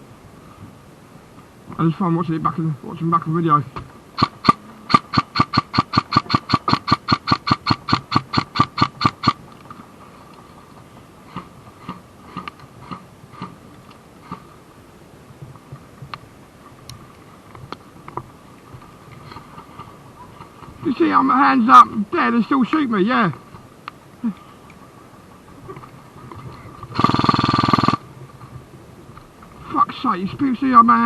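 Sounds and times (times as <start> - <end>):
airsoft gun firing: 4.2 - 9.4, 27.0 - 28.0.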